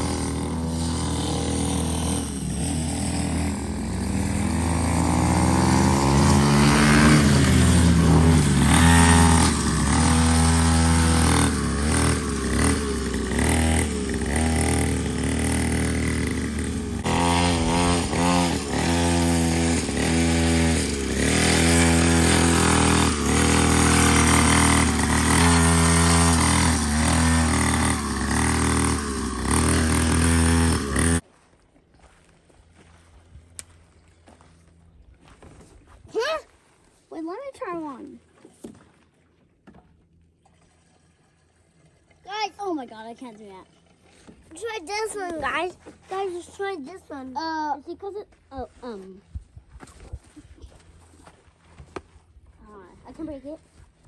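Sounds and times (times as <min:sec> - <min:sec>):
dirt bike engine revving: 0:00.0 - 0:31.2.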